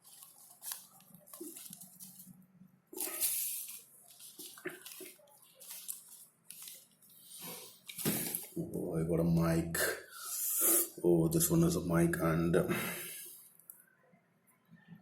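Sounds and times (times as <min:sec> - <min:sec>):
rustling of soft pouch: 0:00.0 - 0:08.6.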